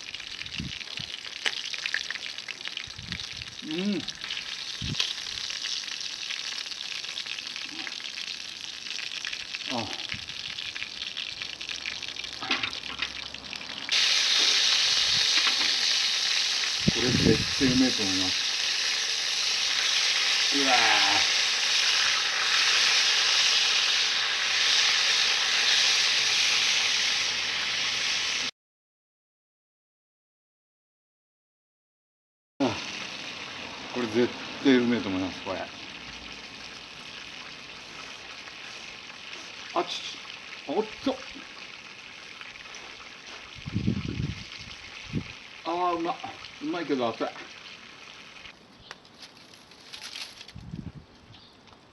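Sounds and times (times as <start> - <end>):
meat sizzling on a grill: 0.0 - 28.5, 32.6 - 48.5
short voiced sound: 3.6 - 4.2, 9.7 - 10.1, 20.6 - 21.3.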